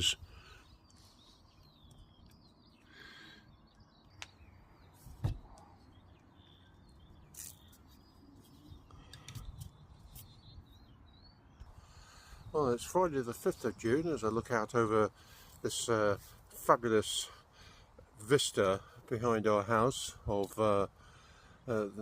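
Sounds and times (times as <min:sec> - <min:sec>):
small birds chirping: 0:00.0 - 0:22.0
rustles: 0:07.2 - 0:10.4.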